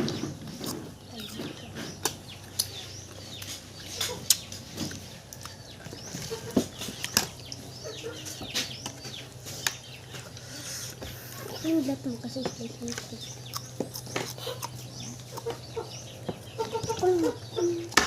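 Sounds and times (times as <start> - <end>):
birds chirping: 0.0 - 18.0
mouth smacks and chewing: 2.0 - 7.6, 12.9 - 15.8.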